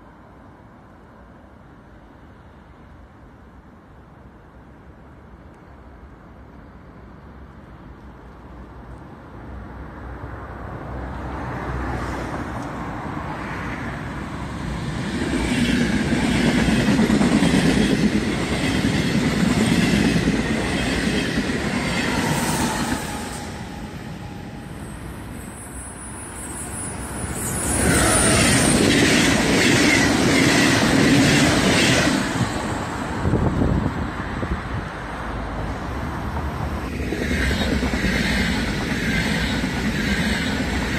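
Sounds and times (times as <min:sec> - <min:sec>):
train whine dropping in pitch: 0:21.7 - 0:30.6.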